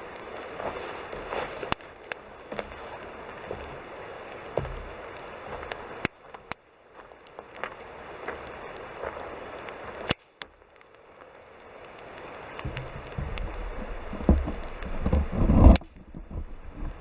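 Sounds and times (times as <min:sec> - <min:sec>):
campfire crackling: 0:00.0 - 0:17.0
wind buffeting microphone: 0:12.6 - 0:17.0.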